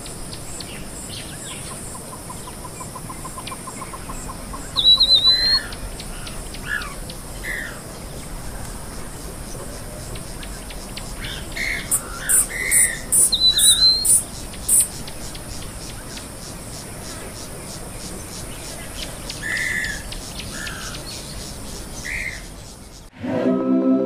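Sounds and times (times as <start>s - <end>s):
lower bird calls: 1.4s - 7.8s, 11.2s - 15.0s
birds warbling whistled calls: 3.2s - 7.8s, 11.2s - 15.0s.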